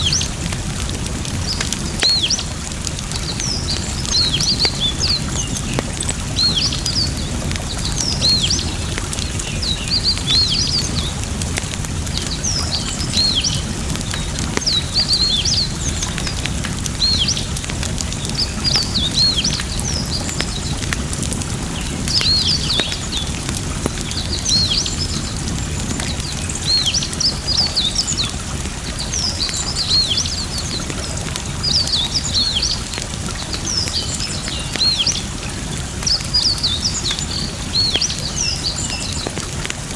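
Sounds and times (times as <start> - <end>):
campfire crackling: 0.0 - 39.9
running water: 0.0 - 39.9
small birds chirping: 0.0 - 39.9.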